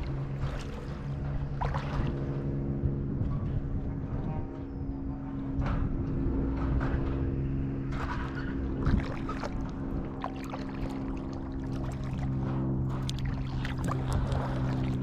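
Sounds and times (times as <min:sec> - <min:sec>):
kayak paddle splashing in water: 0:00.0 - 0:02.2, 0:08.8 - 0:15.0
steady low hum: 0:00.0 - 0:15.0.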